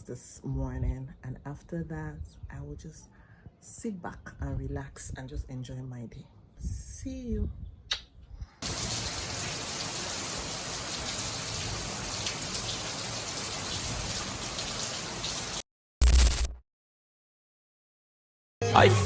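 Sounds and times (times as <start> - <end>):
steady rain falling: 8.6 - 15.6.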